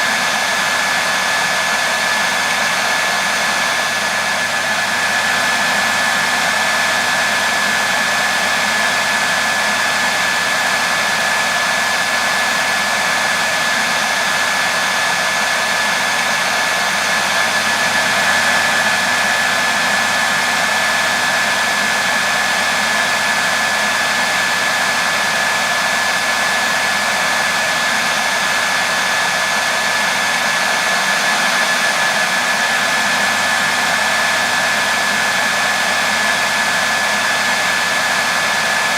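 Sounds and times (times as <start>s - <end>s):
hair dryer running: 0.0s - 38.9s.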